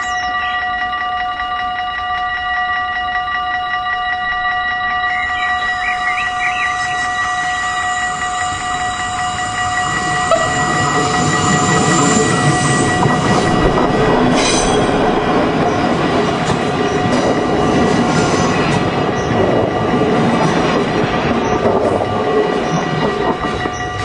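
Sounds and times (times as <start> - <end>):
train wheels rumbling over rails: 5.8 - 24.0
high-pitched squeal: 6.6 - 17.0.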